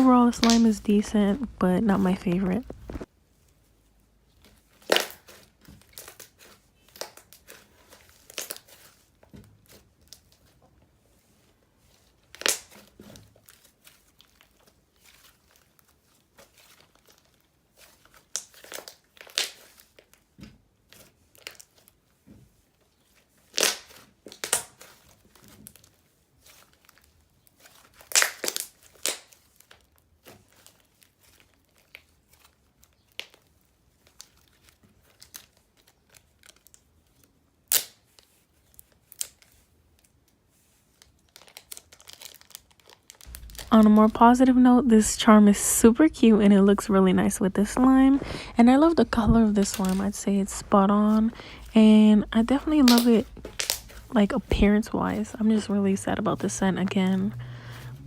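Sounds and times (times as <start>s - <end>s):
slime squished by hand: 51.1s - 54.6s.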